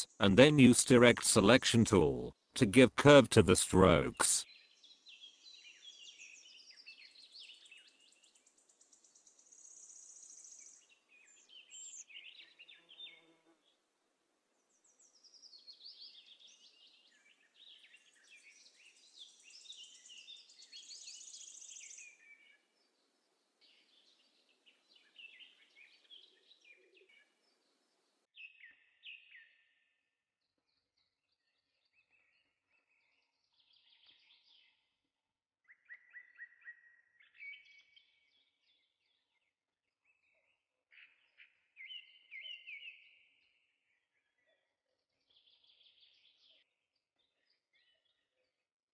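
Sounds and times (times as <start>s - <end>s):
small birds chirping and trilling: 4.4s - 13.4s, 14.7s - 27.8s, 30.7s - 34.9s, 35.8s - 39.4s, 40.1s - 46.6s.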